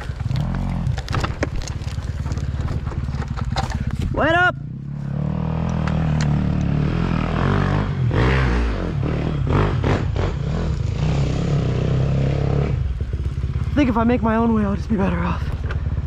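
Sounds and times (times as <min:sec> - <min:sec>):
bike knocking and clattering: 0:00.0 - 0:04.3
dirt bike engine revving: 0:00.0 - 0:15.3.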